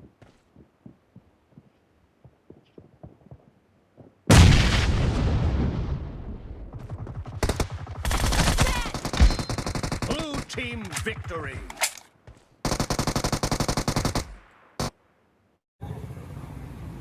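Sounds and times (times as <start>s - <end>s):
rapid automatic gunfire: 6.7s - 11.3s, 12.6s - 14.9s.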